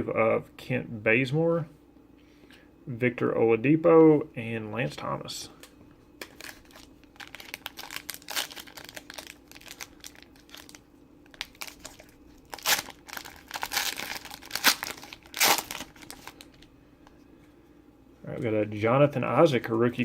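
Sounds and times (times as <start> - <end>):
wrapper crinkling and tearing: 6.2 - 16.7.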